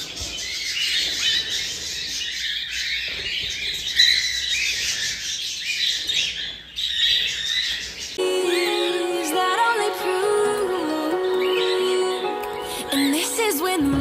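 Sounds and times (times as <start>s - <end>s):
cockatiels chirping and squawking: 0.0s - 8.2s
music with sliding melody: 8.2s - 14.0s.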